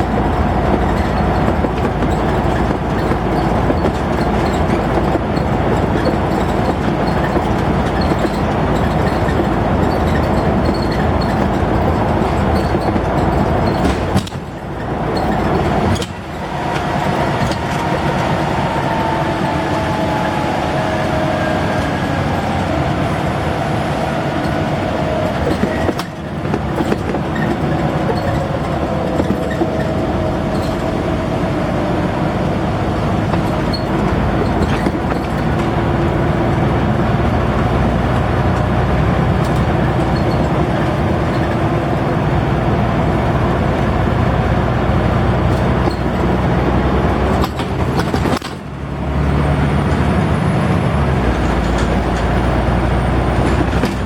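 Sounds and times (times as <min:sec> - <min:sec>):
bus engine drone: 0:00.0 - 0:54.0.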